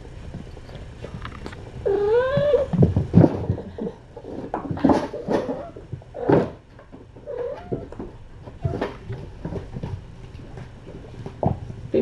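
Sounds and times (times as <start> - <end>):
kittens scuffling: 0.0 - 12.0
cat meowing: 1.1 - 2.9.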